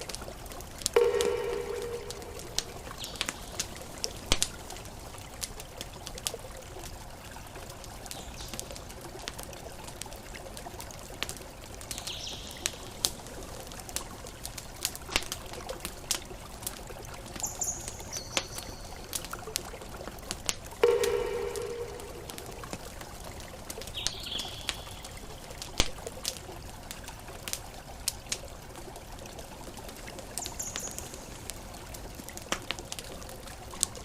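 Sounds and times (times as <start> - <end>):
campfire crackling: 0.0 - 34.0
water rushing: 0.9 - 6.0, 19.9 - 24.0
high chirps: 1.0 - 3.8, 20.8 - 22.7.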